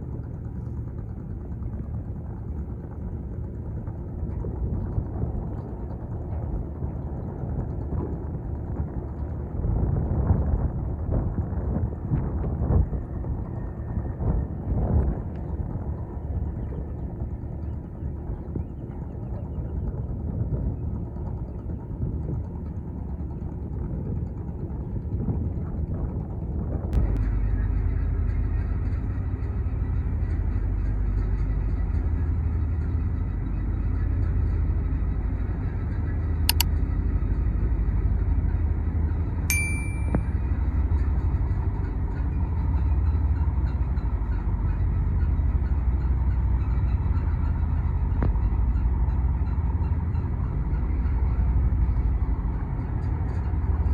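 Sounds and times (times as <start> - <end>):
boat engine humming: 0.0 - 11.1, 12.9 - 53.9
sharp click: 39.5 - 40.2
short ringing tone: 39.5 - 40.3.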